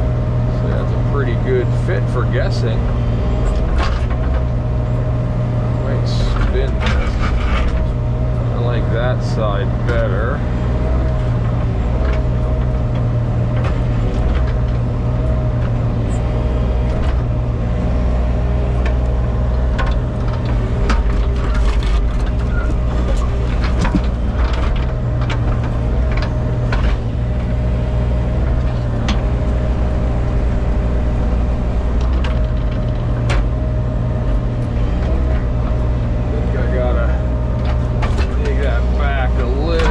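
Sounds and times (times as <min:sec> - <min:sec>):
heavy equipment engine running: 0:00.0 - 0:39.9
steady whine: 0:00.0 - 0:39.9
boulders knocking and clanking: 0:02.2 - 0:39.9.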